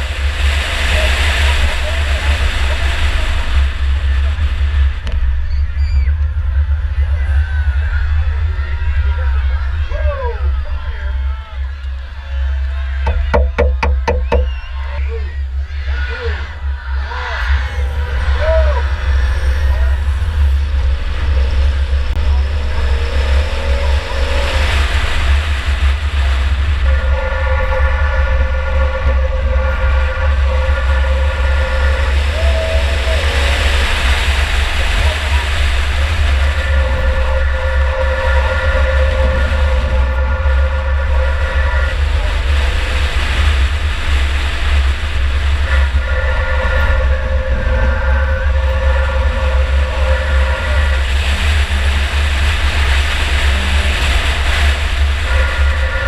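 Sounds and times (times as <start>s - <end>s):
car engine running: 0.0s - 56.0s
faint rising whine: 0.0s - 56.0s
car engine and road noise: 10.8s - 15.7s.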